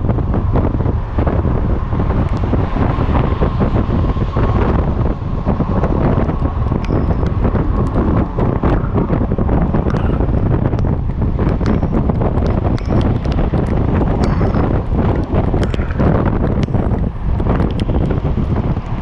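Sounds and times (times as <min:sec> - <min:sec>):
wind buffeting microphone: 0:00.0 - 0:19.0
sharp ticks: 0:06.2 - 0:08.9, 0:09.8 - 0:19.0.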